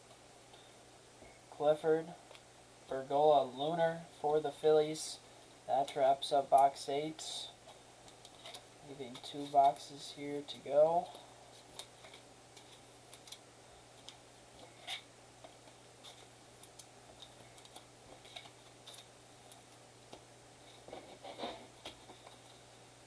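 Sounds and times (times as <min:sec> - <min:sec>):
trading cards being handled: 0:07.6 - 0:22.7.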